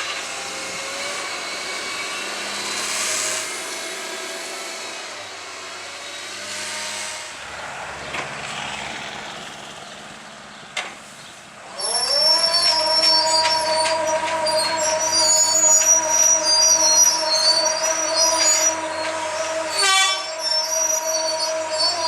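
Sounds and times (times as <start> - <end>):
heavy machinery engine running: 0.0 - 22.0
high squealing tones: 11.7 - 22.0
rising machine whine: 11.7 - 22.0.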